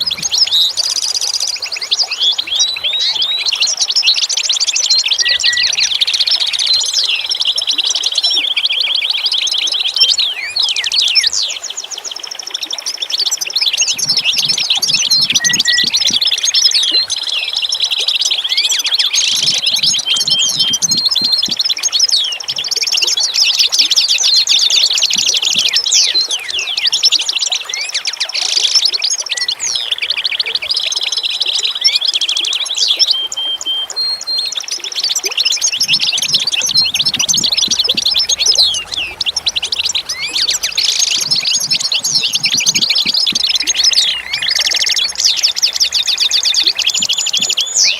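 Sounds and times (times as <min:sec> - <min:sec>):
songbirds chirping and singing: 0:00.0 - 0:47.9
low rapid pulsing: 0:35.8 - 0:45.3.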